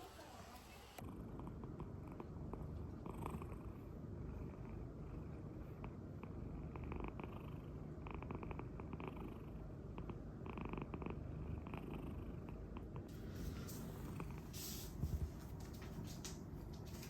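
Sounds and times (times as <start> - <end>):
cat purring: 1.0 - 16.9
faint hiss: 13.1 - 17.0.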